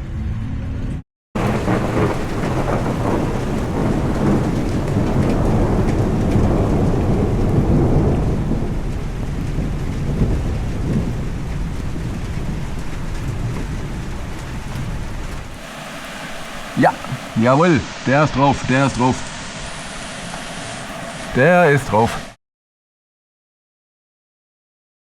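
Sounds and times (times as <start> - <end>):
rolling thunder: 1.4 - 17.6
heavy rain: 1.4 - 22.4.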